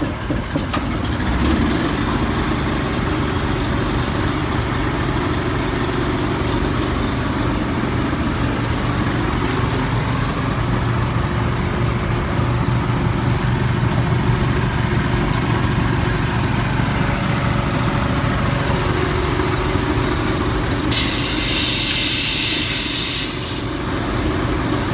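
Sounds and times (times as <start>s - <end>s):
diesel truck engine idling: 0.0s - 24.9s
compressed air hiss: 20.9s - 24.2s.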